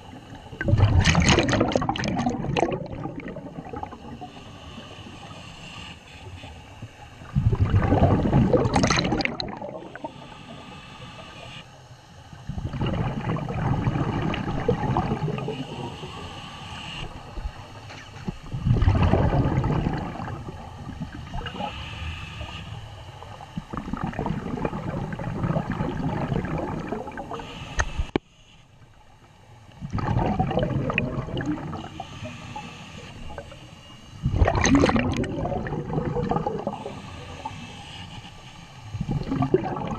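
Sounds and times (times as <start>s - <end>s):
underwater exhaled bubbles gurgling: 0.0s - 5.5s, 6.2s - 11.4s, 12.3s - 28.2s, 29.8s - 37.9s, 38.9s - 39.9s
steady quiet hiss: 2.1s - 39.9s.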